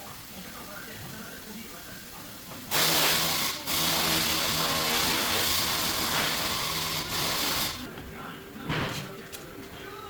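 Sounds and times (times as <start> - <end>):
compressed air hissing: 2.7 - 7.9.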